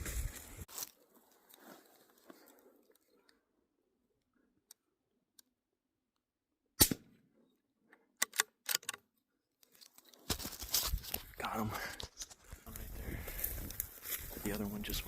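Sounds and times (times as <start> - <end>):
rifle shot crack: 6.8 - 7.1.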